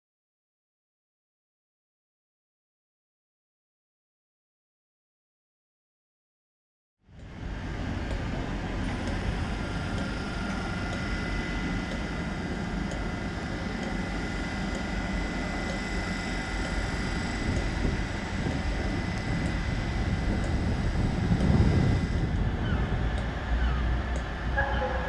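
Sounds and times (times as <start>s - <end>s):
idling trains rumbling: 7.1s - 25.0s
high-pitched electric whine: 7.2s - 25.0s.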